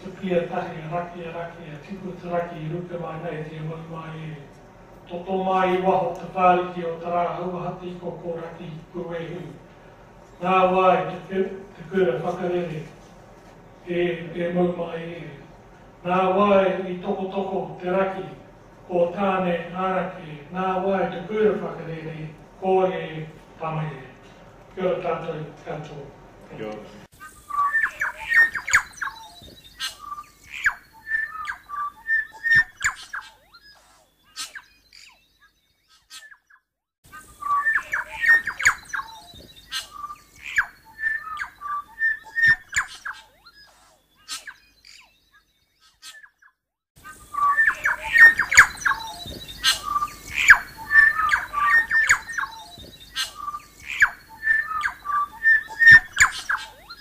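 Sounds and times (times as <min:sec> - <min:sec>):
bird singing with sharp clicks: 0:27.5 - 0:36.6, 0:37.4 - 0:46.6, 0:47.3 - 0:57.0.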